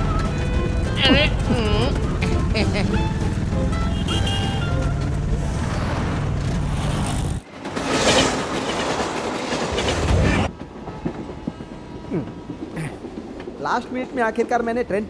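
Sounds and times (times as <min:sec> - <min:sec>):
low vehicle rumble: 0:00.0 - 0:07.5
passenger train rushing past: 0:00.0 - 0:15.0.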